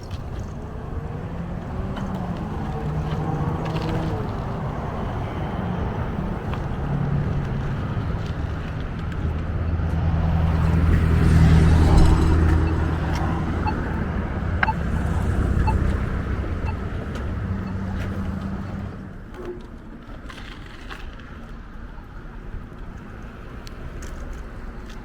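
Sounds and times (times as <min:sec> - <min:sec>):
vehicle engine hum passing: 0:00.0 - 0:19.7
traffic passing on road: 0:00.0 - 0:25.0.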